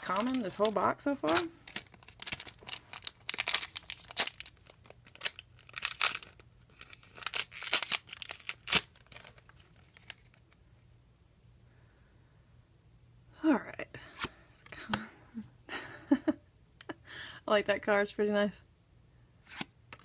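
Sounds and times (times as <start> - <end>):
foil wrapper tearing and crinkling: 0.0 - 10.4.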